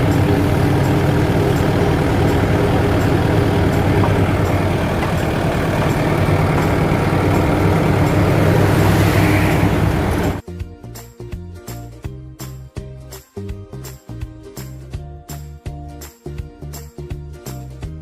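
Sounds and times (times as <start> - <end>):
heavy diesel engine running: 0.0 - 10.4.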